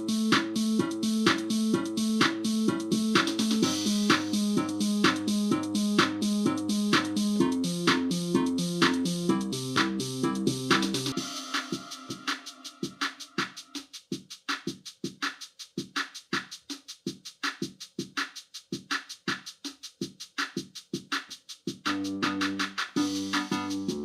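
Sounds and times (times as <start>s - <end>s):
held chord with bass line: 0.0s - 11.5s, 23.0s - 24.0s
drum machine beat: 0.0s - 24.0s.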